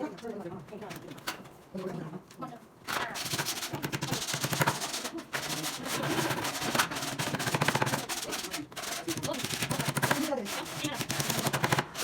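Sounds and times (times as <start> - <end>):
woodworking power tool rattling: 3.2 - 12.0.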